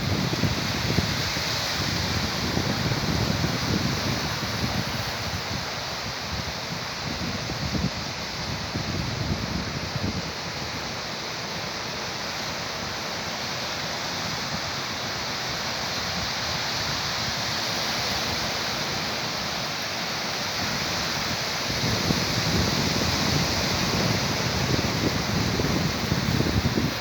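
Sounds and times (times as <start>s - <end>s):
wind buffeting microphone: 0.0s - 10.8s, 20.7s - 27.0s
sea surf rushing: 0.0s - 27.0s.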